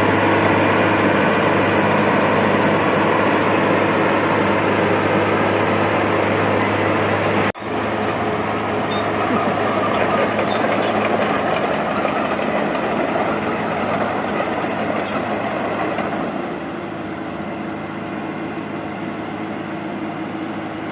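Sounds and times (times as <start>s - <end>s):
heavy diesel engine rumbling: 0.0s - 20.9s.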